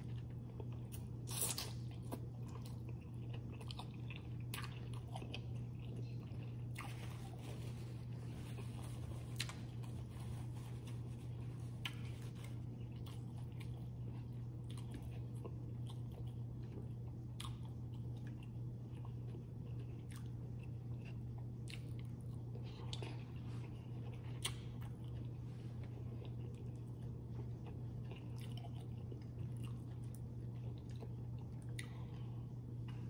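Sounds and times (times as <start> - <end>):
person chewing food: 0.0 - 33.0
steady low hum: 0.0 - 33.0
sharp crunches or mouth clicks: 0.9 - 1.9.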